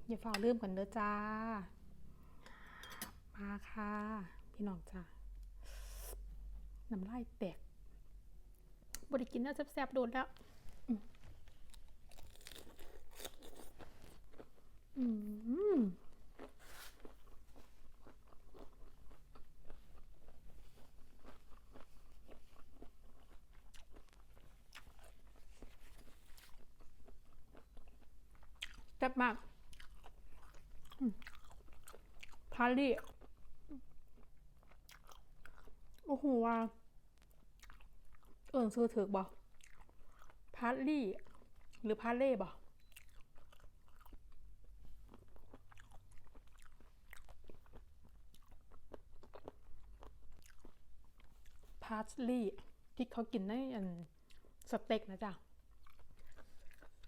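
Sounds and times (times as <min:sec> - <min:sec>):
crunchy chewing: 0:11.4 - 0:14.7, 0:16.3 - 0:28.9, 0:29.7 - 0:32.4, 0:34.1 - 0:36.1, 0:39.4 - 0:40.5, 0:42.8 - 0:44.3, 0:45.0 - 0:51.7, 0:55.7 - 0:57.0.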